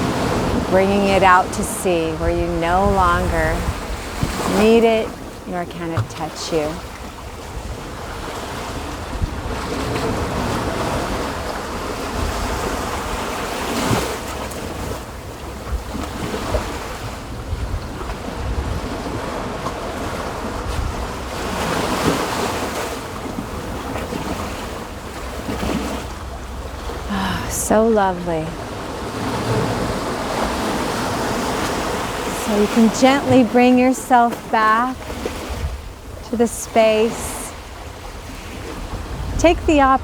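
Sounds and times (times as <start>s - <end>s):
wind rumbling on microphone: 0.0s - 5.4s, 6.7s - 27.5s, 35.0s - 40.0s
ocean waves washing on beach: 0.0s - 40.0s.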